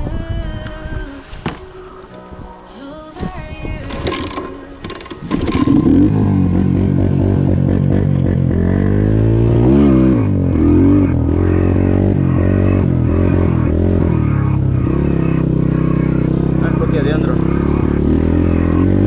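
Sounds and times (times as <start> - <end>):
motorcycle engine revving: 3.9 - 19.0.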